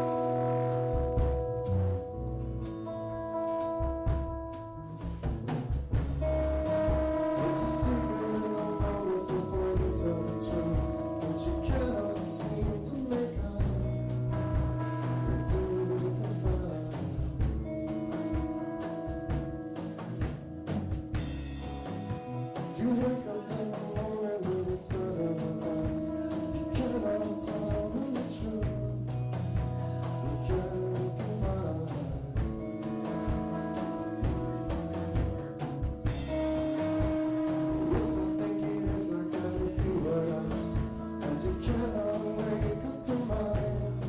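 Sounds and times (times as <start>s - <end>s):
drum kit hits: 0.0s - 2.2s, 3.6s - 44.0s
live rock band playing: 0.0s - 44.0s.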